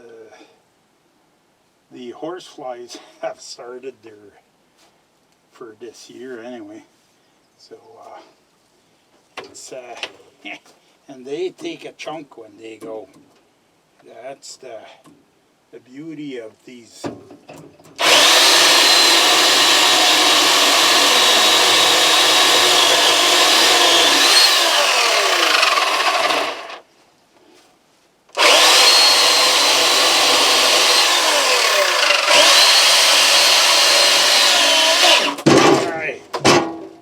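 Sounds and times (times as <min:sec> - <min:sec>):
chainsaw cutting wood: 0:18.0 - 0:26.8, 0:28.4 - 0:35.7.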